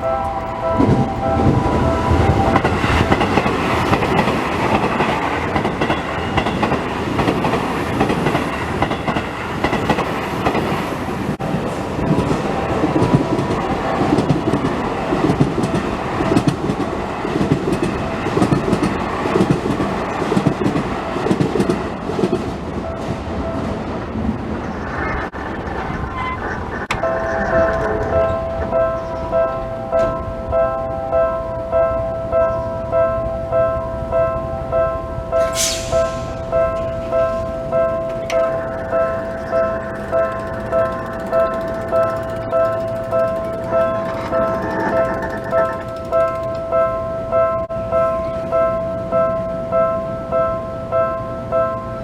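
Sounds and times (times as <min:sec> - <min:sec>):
wheels clattering over rail joints: 0:00.0 - 0:23.5, 0:35.4 - 0:47.6
crossing warning bell: 0:00.0 - 0:24.4, 0:26.9 - 0:52.0
train rumbling: 0:00.0 - 0:52.0.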